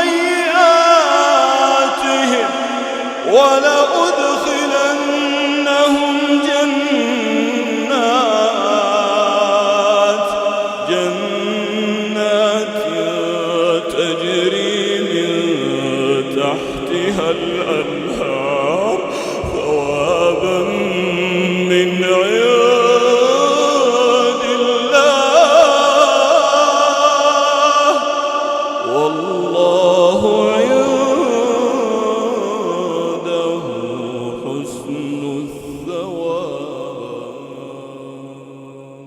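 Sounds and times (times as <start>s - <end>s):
man chanting melodic recitation: 0.0s - 38.4s.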